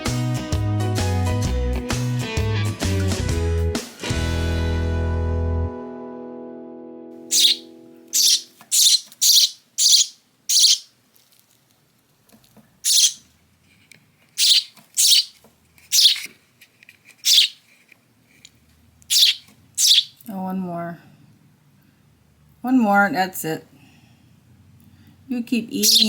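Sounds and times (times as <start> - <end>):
sparrow harsh chirps: 7.3 - 7.6, 8.2 - 10.9, 12.8 - 13.2, 14.4 - 16.2, 17.2 - 17.6, 19.1 - 20.2, 25.8 - 26.0.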